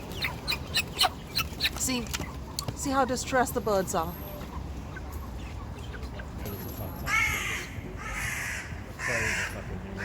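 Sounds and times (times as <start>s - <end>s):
harsh raspy bird calls: 7.1s - 10.0s.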